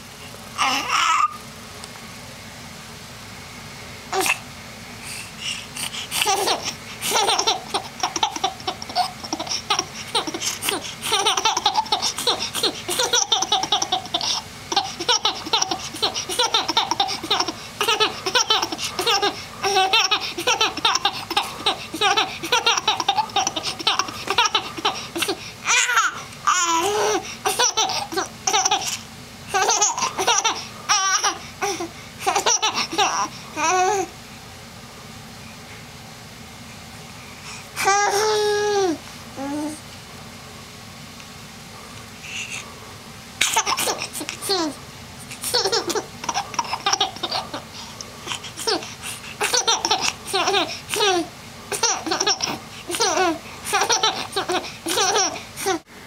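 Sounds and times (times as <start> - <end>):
baby squealing: 0.6 - 1.4
baby laughing: 6.1 - 34.1, 43.4 - 55.8.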